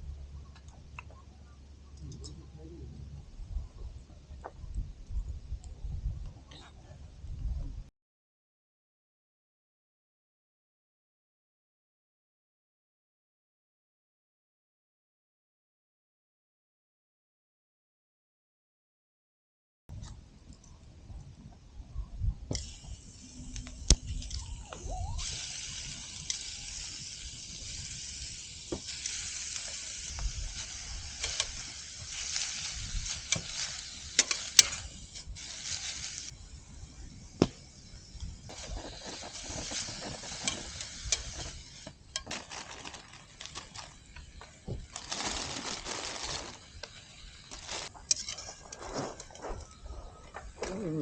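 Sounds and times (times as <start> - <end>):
meat sizzling in a frying pan: 22.7 - 36.4, 37.4 - 42.6
utensil scraping a pan: 30.6 - 36.3, 47.5 - 49.5.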